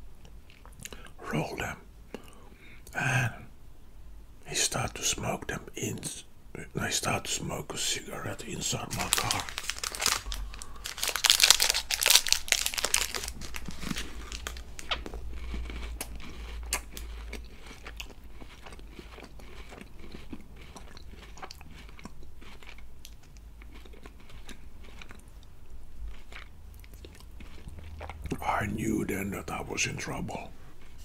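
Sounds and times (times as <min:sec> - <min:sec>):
crunchy wafer chewing: 0:08.2 - 0:29.2.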